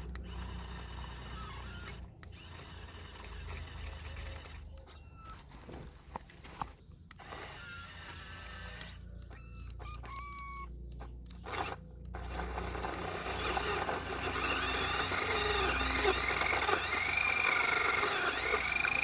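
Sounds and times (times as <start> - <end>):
electric motors whining: 0.0 - 5.5, 7.1 - 19.0.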